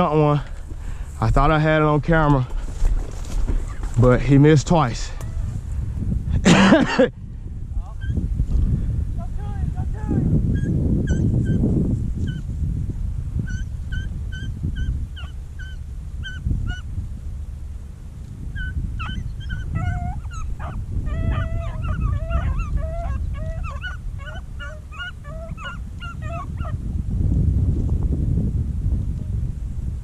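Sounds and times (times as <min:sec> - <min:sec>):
low rumble: 0:00.0 - 0:06.5
dogs yelping and baying: 0:08.0 - 0:08.2, 0:10.5 - 0:11.6, 0:12.2 - 0:12.5, 0:13.5 - 0:16.9, 0:18.6 - 0:26.8.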